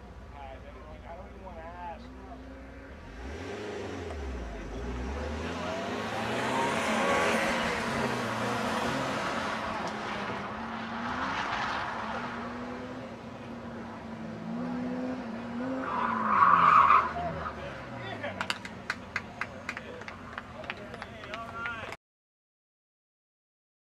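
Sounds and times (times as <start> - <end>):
car engine revving: 2.1 - 19.4.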